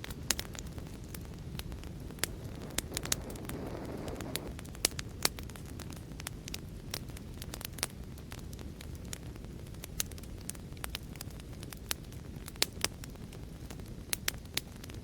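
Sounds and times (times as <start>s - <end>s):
fireplace fire crackling: 0.0s - 15.0s
soft hiss: 0.9s - 4.6s.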